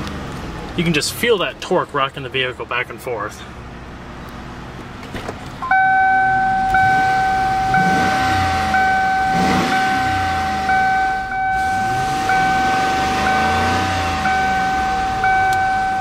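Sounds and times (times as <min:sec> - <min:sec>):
car engine revving: 0:05.4 - 0:16.0
pulsing car warning tone: 0:05.6 - 0:16.0.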